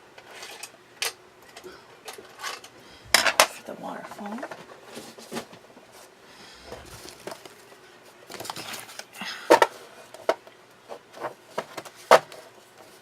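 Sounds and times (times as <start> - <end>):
paper rustling and sliding: 6.7 - 7.7.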